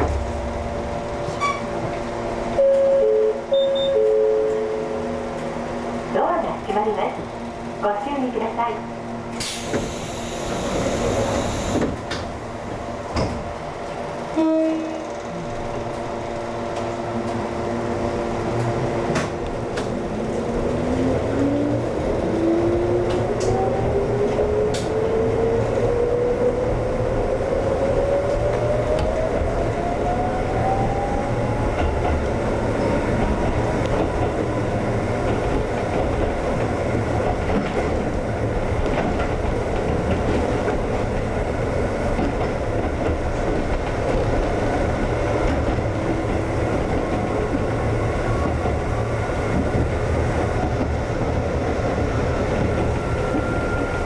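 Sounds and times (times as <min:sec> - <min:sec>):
air hiss: 0:09.4 - 0:11.8
train wheels clattering on rails: 0:09.4 - 0:12.4, 0:18.5 - 0:26.2, 0:31.5 - 0:54.0
electric train motor whine: 0:09.8 - 0:12.0
train horn blast: 0:14.3 - 0:15.2.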